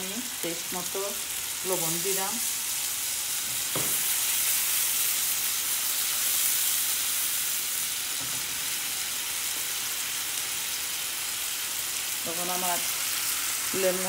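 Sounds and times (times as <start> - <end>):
paste sizzling in hot oil: 0.0 - 14.0.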